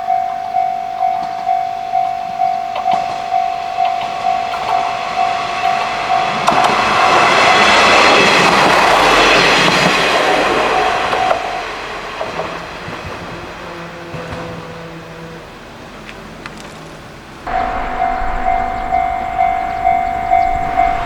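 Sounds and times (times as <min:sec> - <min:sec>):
level crossing warning bell: 0:00.0 - 0:12.3, 0:17.5 - 0:21.0
train passing: 0:00.0 - 0:16.4, 0:17.1 - 0:21.0.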